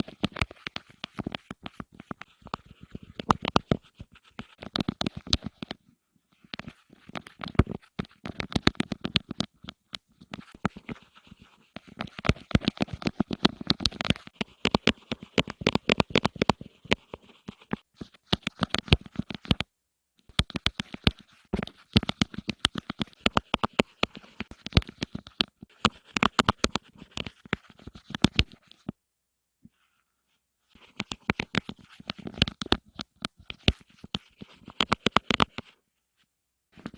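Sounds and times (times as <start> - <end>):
rapid tapping and scratching: 0.0 - 5.8, 6.4 - 19.7, 20.3 - 29.0, 30.7 - 35.8.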